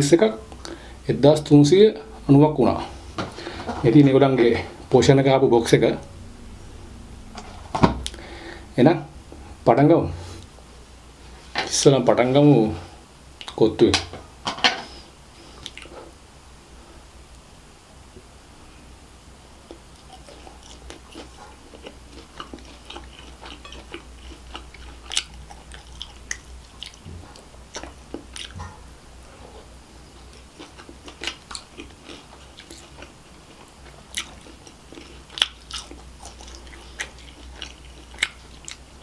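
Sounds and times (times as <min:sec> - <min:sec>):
person chewing: 0:15.4 - 0:16.1, 0:19.6 - 0:39.0.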